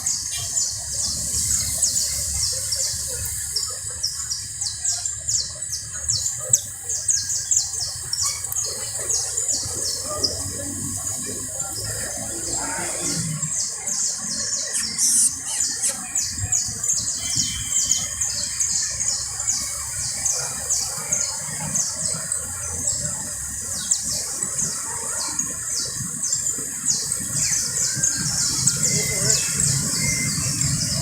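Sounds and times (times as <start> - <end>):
canary singing: 14.2 - 19.6.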